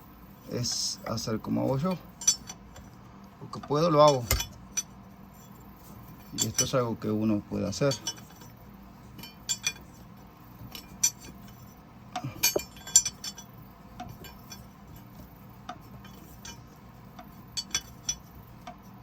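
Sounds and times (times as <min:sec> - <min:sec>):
hand tools clinking on steel: 0:03.5 - 0:04.9, 0:06.2 - 0:08.5, 0:09.2 - 0:09.9, 0:10.6 - 0:11.6, 0:12.2 - 0:15.2, 0:15.8 - 0:18.4.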